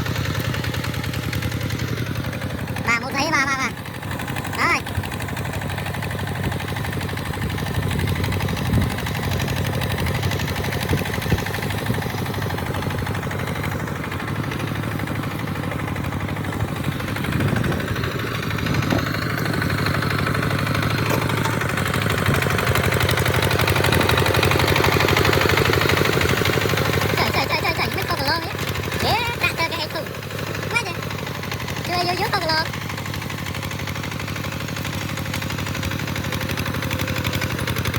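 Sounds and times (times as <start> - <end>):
tractor engine running: 0.0 - 37.9.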